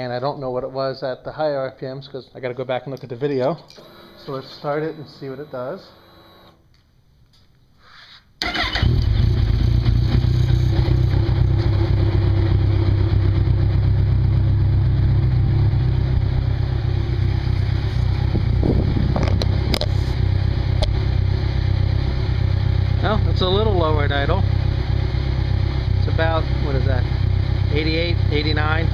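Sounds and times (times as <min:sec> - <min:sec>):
motorcycle engine starting and idling: 0:08.4 - 0:28.9.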